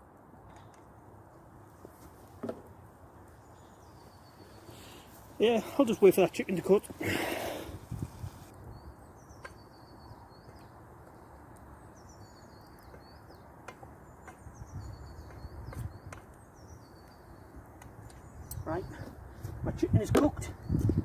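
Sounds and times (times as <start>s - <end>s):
birds chirping: 3.2s - 21.0s.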